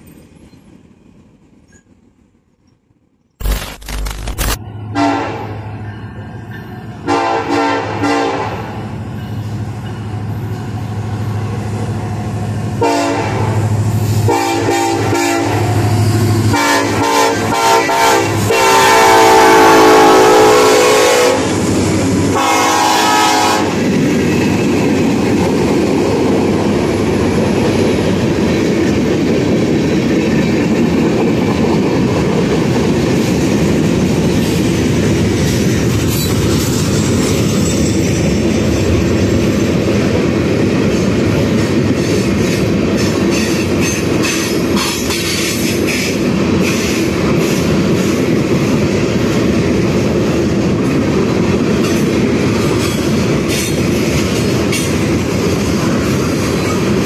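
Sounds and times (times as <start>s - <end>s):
diesel locomotive passing: 4.6s - 57.0s
train air horn blasts: 4.9s - 5.7s, 7.0s - 8.9s, 12.8s - 13.6s, 14.2s - 15.8s, 16.5s - 21.7s, 22.3s - 23.8s
steel wheels clattering on rails: 40.8s - 49.6s, 50.6s - 57.0s.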